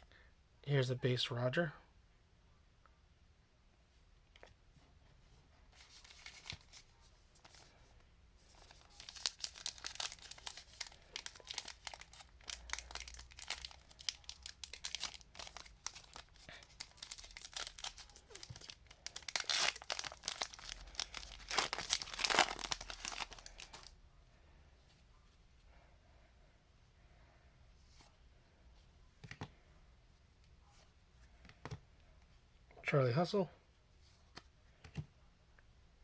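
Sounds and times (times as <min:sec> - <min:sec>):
plastic wrapper crinkling and tearing: 0:05.8 - 0:07.7, 0:08.5 - 0:23.9.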